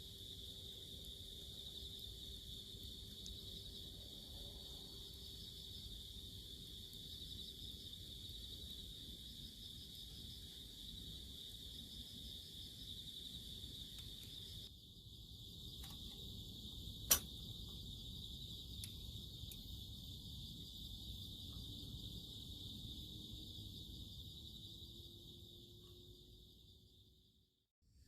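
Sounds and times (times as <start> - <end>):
insects trilling: 0.0 - 27.4
sharp crack: 17.1 - 17.4.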